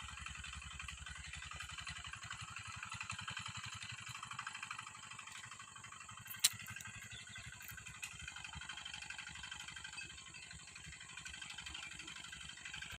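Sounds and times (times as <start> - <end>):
small tractor engine running: 0.0 - 12.9
sharp click: 6.3 - 6.9.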